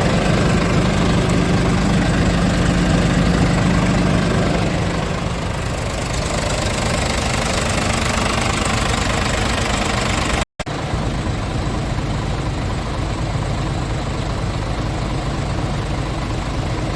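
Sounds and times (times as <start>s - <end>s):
diesel truck engine idling: 0.0s - 16.9s.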